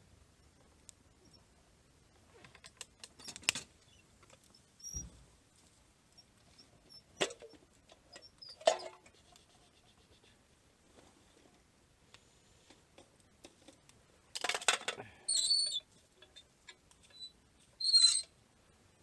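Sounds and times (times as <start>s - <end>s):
small objects clicking and knocking: 2.4s - 5.0s, 12.7s - 15.1s.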